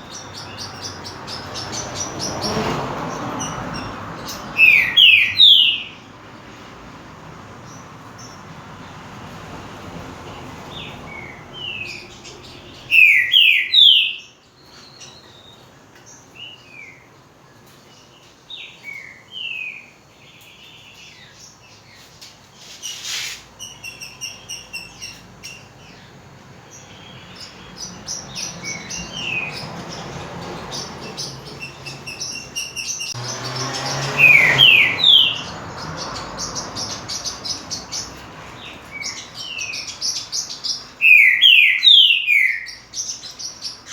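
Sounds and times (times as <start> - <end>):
bird whistling song: 4.2 - 6.0, 11.1 - 15.6, 26.8 - 30.1, 30.7 - 43.9.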